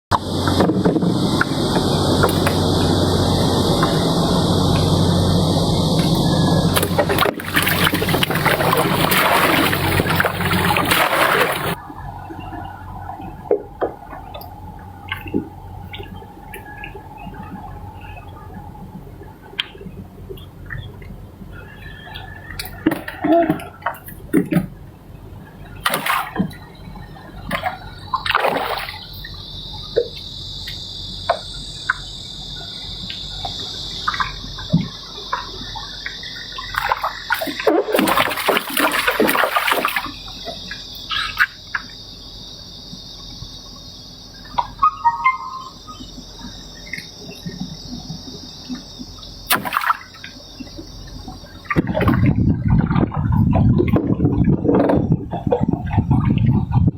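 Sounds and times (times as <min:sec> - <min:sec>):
rush of water: 0:00.1 - 0:18.6, 0:25.6 - 0:29.4, 0:36.6 - 0:40.5, 0:49.5 - 0:50.4
water splashing around boat: 0:00.1 - 0:56.9
high insect buzz: 0:00.2 - 0:11.8, 0:25.6 - 0:51.7.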